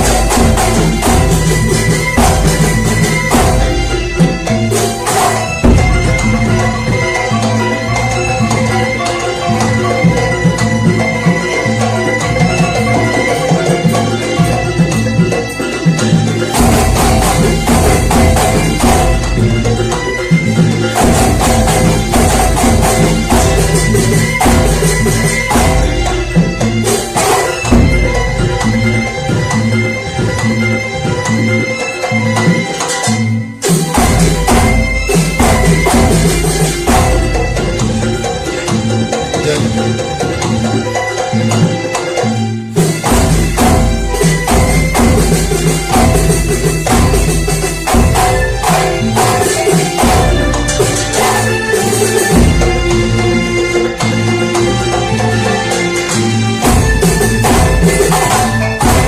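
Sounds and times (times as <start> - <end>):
heavy low drum beat: 0.0 - 7.1, 21.0 - 28.8, 42.9 - 53.1, 56.7 - 59.0
frame drums and percussion rhythm: 0.0 - 59.0
sustained melodic tones: 0.0 - 59.0.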